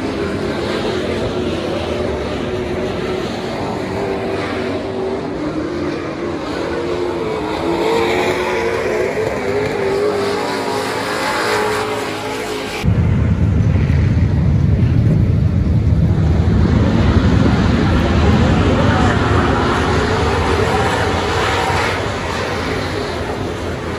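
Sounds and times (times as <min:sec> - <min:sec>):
race car engines running: 0:00.0 - 0:23.9
deep engine rumble: 0:12.7 - 0:23.9.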